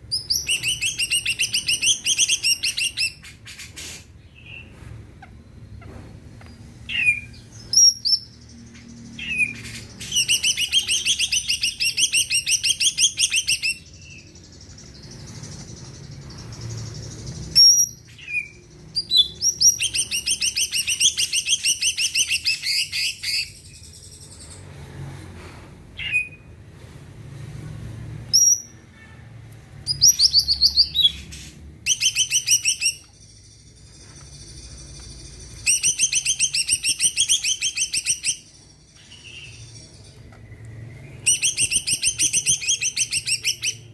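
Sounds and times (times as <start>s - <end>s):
bird singing whistles and trills: 9.2s - 24.3s, 31.8s - 43.9s.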